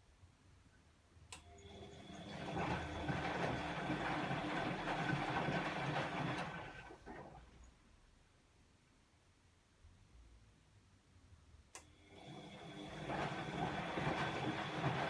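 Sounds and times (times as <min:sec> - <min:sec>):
washing machine drum tumbling: 0:13.0 - 0:15.0.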